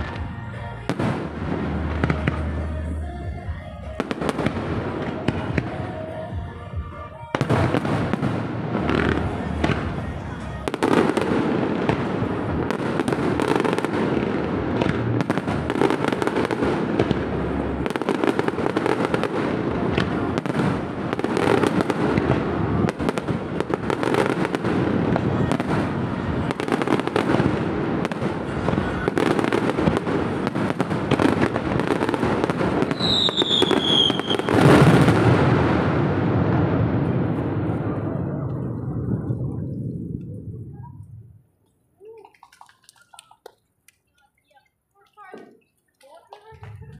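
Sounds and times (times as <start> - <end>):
fireworks bursting and crackling: 0.0 - 41.2
firework whistle falling: 32.9 - 34.8.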